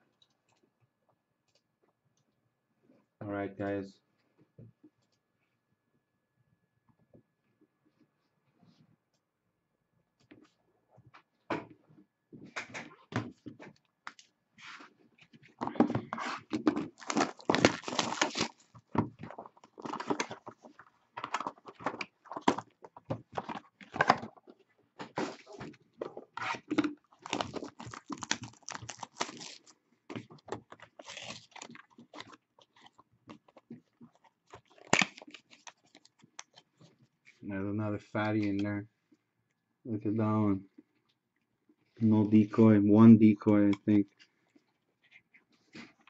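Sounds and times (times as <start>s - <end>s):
plastic packaging crinkling: 16.4s - 24.4s, 26.4s - 36.9s.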